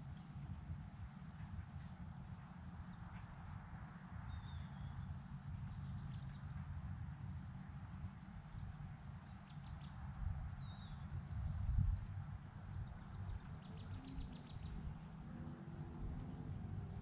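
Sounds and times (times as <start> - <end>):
small birds chirping: 2.7 - 17.0
steady low rumble: 10.2 - 17.0.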